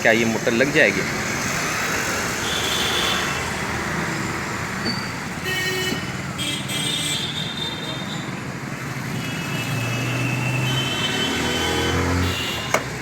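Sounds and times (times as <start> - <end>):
street traffic noise: 0.0 - 13.0
vehicle horns: 2.4 - 3.5, 5.4 - 8.4, 9.0 - 13.0.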